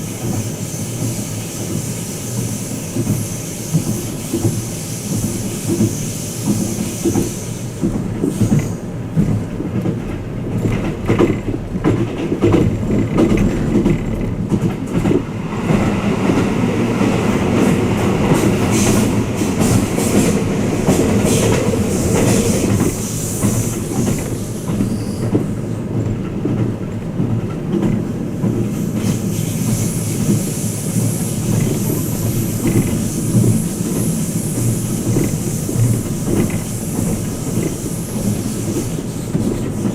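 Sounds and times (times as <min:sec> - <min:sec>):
train wheels rumbling on rails: 0:00.0 - 0:39.9
high hiss: 0:28.9 - 0:39.2.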